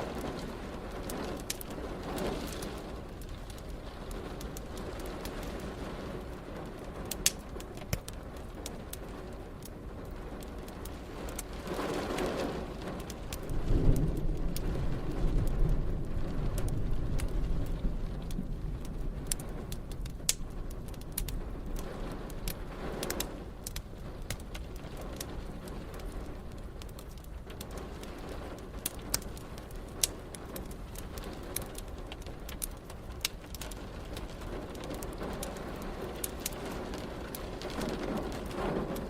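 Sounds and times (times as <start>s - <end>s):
steady rain: 0.0s - 39.0s
wood fire crackling: 0.0s - 39.0s
thunder rumbling: 8.2s - 39.0s.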